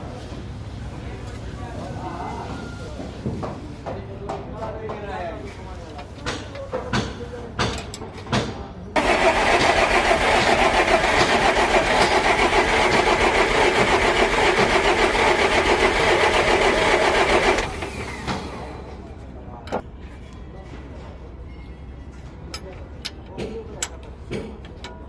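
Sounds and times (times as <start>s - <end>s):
diesel truck engine starting: 9.0s - 19.0s.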